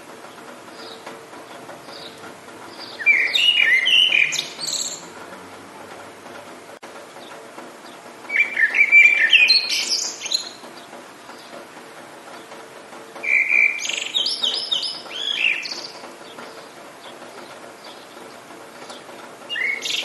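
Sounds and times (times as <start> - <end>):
songbird warbling: 1.8 - 5.1, 8.3 - 11.5, 13.2 - 20.0.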